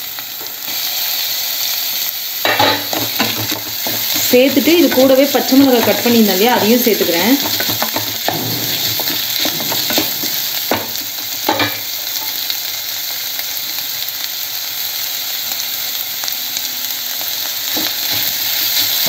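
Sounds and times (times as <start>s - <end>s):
vegetables sizzling in hot oil: 0.0s - 19.0s
spatula scraping and knocking pan: 2.5s - 12.4s.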